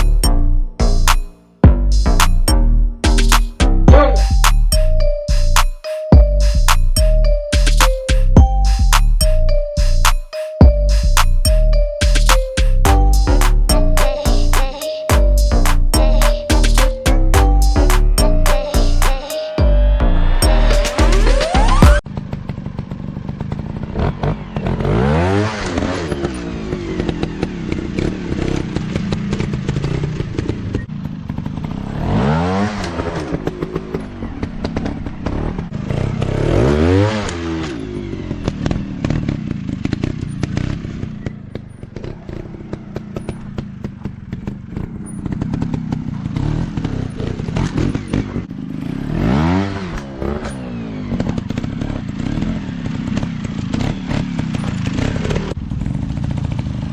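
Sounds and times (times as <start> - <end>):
dirt bike engine revving: 46.1 - 55.5.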